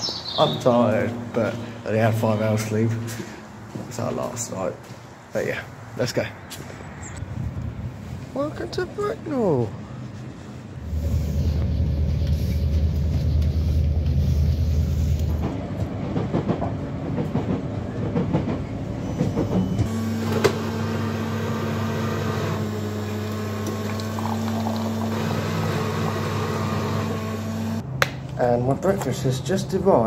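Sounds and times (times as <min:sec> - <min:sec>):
vehicle interior rumble: 0:10.8 - 0:15.5.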